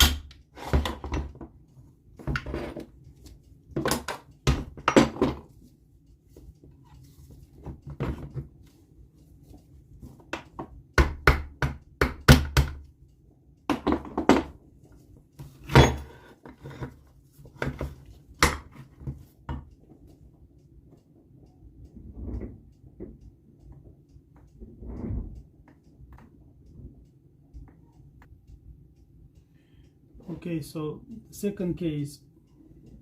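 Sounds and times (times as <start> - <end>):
tools knocking on metal parts: 3.7 - 5.6, 13.7 - 14.6, 15.4 - 19.8.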